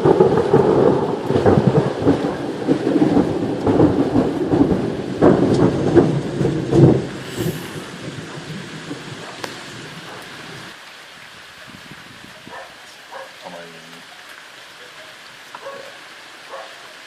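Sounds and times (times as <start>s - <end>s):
thunder rumbling: 0.0s - 10.8s
rain falling: 0.0s - 17.0s.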